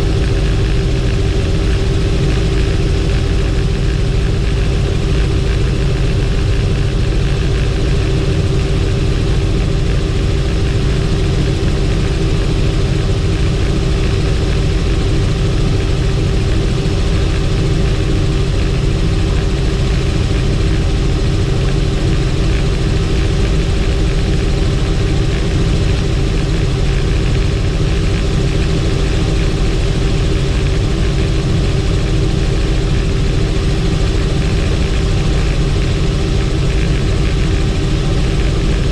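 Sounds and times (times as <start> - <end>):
helicopter engine and rotor noise: 0.0 - 38.9.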